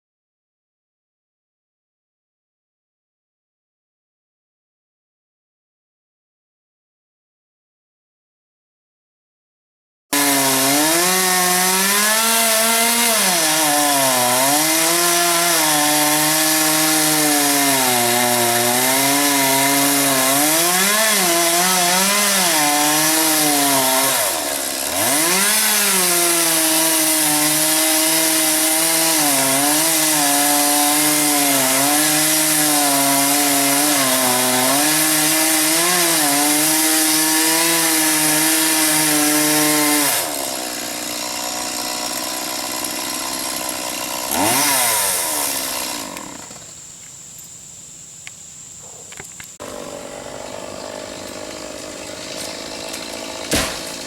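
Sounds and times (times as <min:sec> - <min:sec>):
chainsaw cutting wood: 0:10.1 - 0:47.5, 0:48.8 - 0:54.0.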